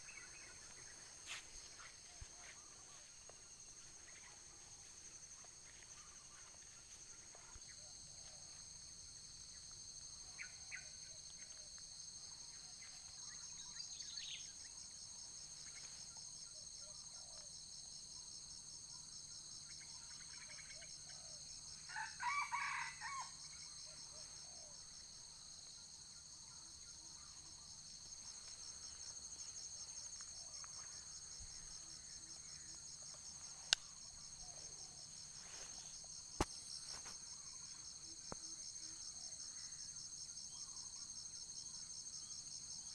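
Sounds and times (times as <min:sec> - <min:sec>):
insects trilling: 0:00.0 - 0:42.9
rooster crowing: 0:21.9 - 0:23.4.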